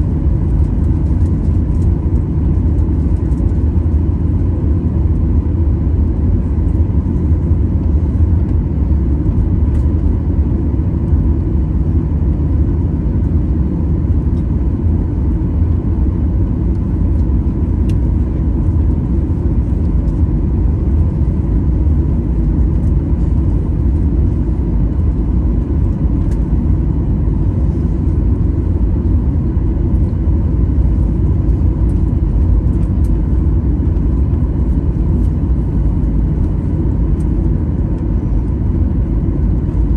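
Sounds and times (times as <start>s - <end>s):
faint steady whine: 0.0s - 39.9s
jet engines rumbling in cabin: 0.0s - 39.9s.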